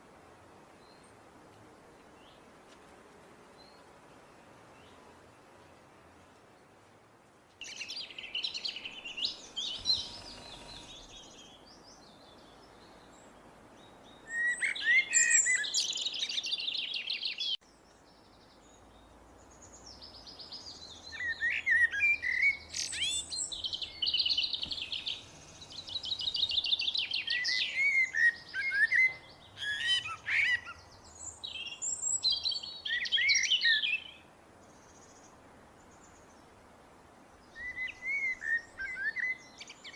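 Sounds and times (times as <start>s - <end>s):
blackbird singing: 7.6s - 34.2s, 37.4s - 39.9s.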